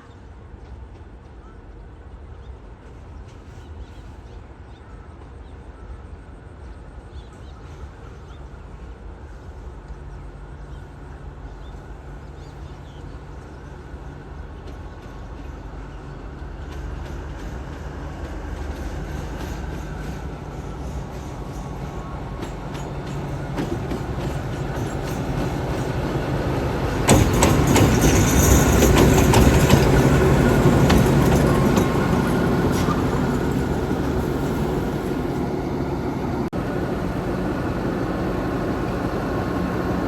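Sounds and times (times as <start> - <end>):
train rumble and engine drone: 0.0 - 40.0
wheels clicking over rail joints: 21.1 - 34.6.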